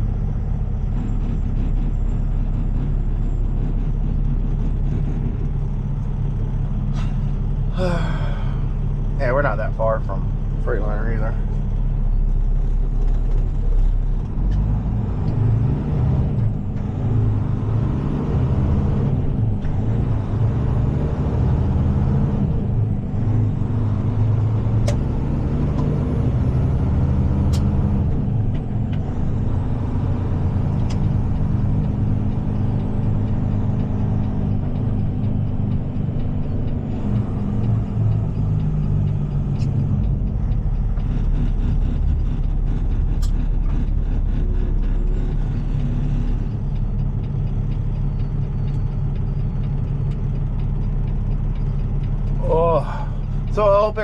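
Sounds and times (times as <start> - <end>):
diesel truck engine drone: 0.0 - 54.0
sharp clicks: 22.5 - 54.0.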